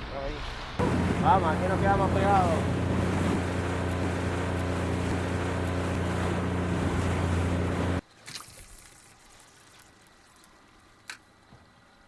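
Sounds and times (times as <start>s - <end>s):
wind: 0.0s - 12.0s
boat engine running: 0.8s - 8.0s
water noise: 0.8s - 11.0s.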